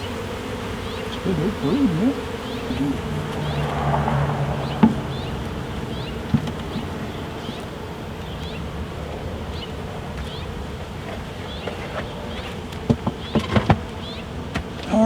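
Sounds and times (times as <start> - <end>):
bees humming: 0.0 - 15.0
light knocks: 3.3 - 8.4.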